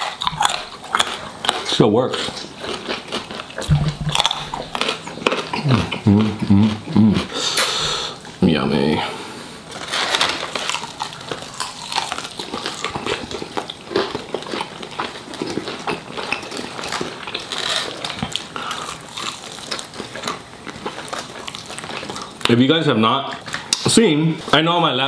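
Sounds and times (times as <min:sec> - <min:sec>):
crunchy chewing and biting: 0:00.0 - 0:07.7, 0:09.7 - 0:22.6.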